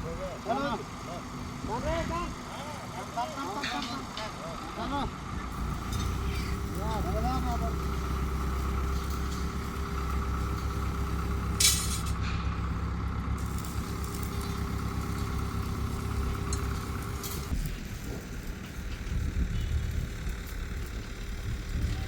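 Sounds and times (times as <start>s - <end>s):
vehicle engine running: 4.2s - 22.0s
short loud hiss: 11.6s - 12.2s.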